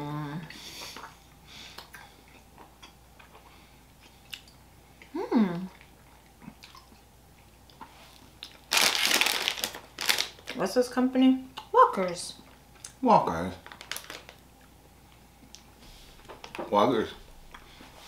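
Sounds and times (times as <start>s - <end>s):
person chewing toffee: 0.8s - 10.4s
person humming mmm: 5.0s - 5.8s.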